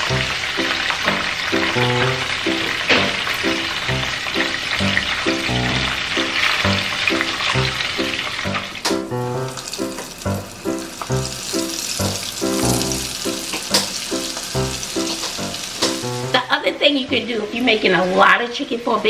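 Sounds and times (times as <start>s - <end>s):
chicken frying in hot oil: 0.0s - 17.0s
background music with a beat: 10.7s - 16.3s.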